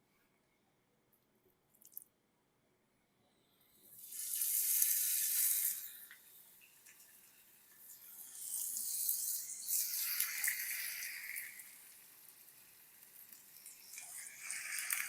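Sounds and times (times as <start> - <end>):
chicken sizzling in oil: 3.9 - 15.0.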